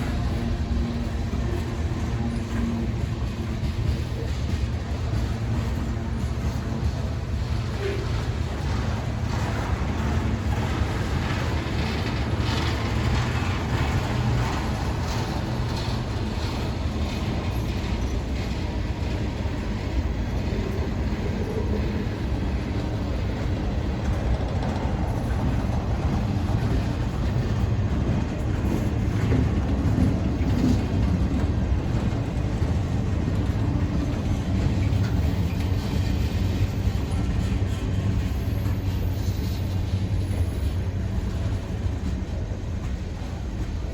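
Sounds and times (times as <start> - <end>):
freight train wheels on rails: 0.0 - 43.9.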